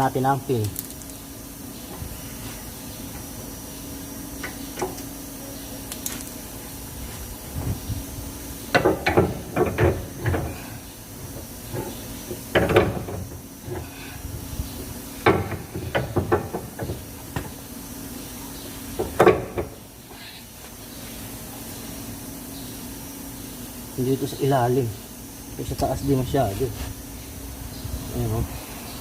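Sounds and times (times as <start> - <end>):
steady low hum: 0.0 - 29.0
metal clunks and rattles: 8.7 - 10.6, 11.2 - 13.9, 14.8 - 17.6, 19.0 - 19.8.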